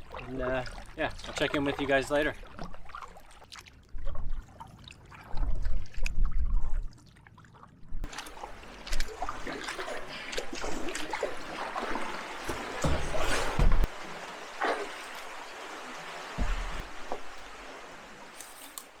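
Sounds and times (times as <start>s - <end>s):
water splashing off paddle: 8.1s - 19.0s.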